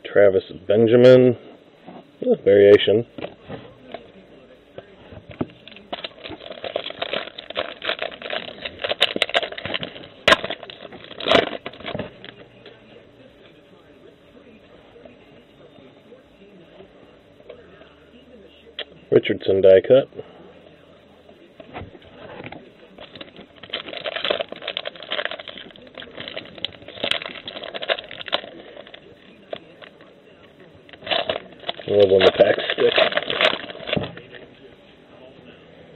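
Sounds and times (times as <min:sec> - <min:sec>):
crinkling card packaging: 0:04.8 - 0:12.8, 0:21.6 - 0:34.8.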